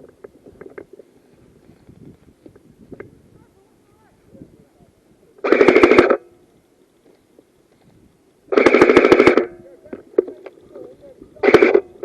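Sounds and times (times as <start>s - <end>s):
airsoft gun full-auto bursts: 5.4s - 6.2s, 8.5s - 9.5s, 11.4s - 12.0s.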